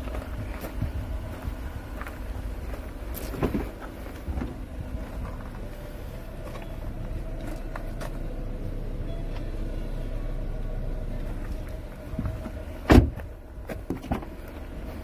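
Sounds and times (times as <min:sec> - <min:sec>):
car engine idling: 0:00.0 - 0:15.0
sharp thump: 0:12.9 - 0:13.3.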